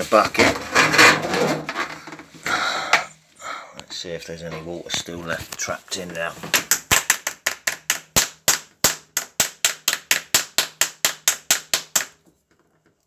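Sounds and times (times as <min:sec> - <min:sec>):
rapid sharp knocks: 0:06.5 - 0:12.2.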